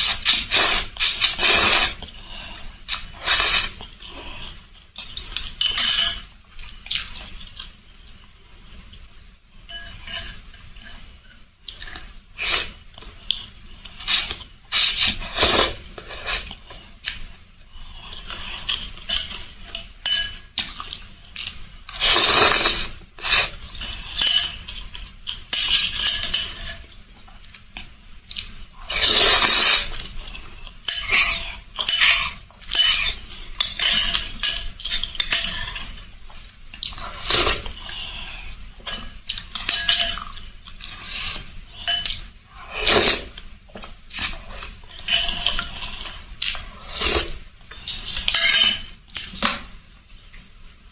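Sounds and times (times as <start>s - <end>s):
slurping noises: 0.0s - 2.2s
cutlery clinking against a bowl: 5.0s - 7.7s, 9.6s - 12.2s, 18.1s - 27.6s, 28.3s - 49.7s.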